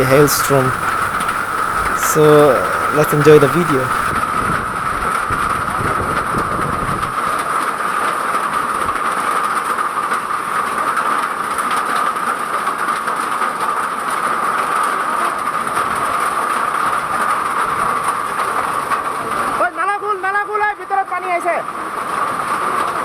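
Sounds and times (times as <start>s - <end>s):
hail and rain pelting: 0.0s - 4.1s.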